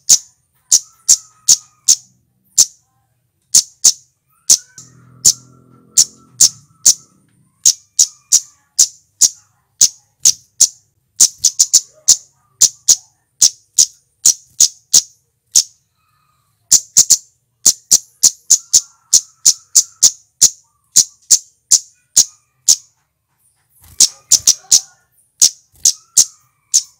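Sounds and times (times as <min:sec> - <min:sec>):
bird giving high tsit calls: 0:03.5 - 0:15.8, 0:16.7 - 0:22.9, 0:23.8 - 0:26.9.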